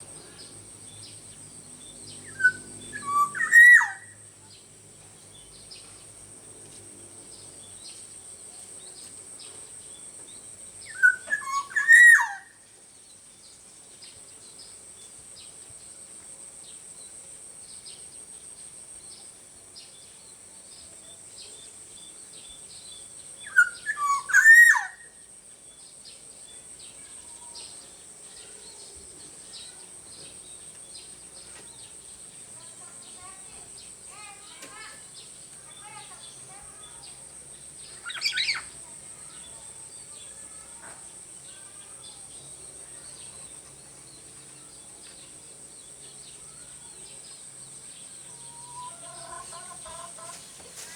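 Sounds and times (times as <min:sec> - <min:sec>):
oriole fluting whistled song: 0:02.3 - 0:04.1, 0:10.9 - 0:12.4, 0:23.5 - 0:25.0.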